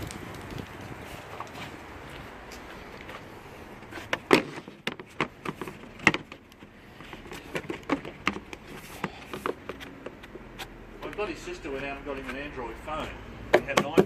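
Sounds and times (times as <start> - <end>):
tools and parts knocking on car: 13.5 - 14.0.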